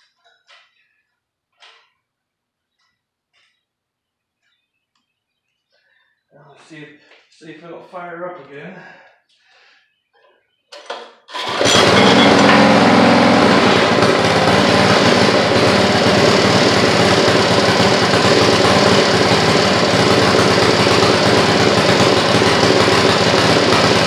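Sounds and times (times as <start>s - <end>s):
small gasoline engine running: 11.3s - 24.0s.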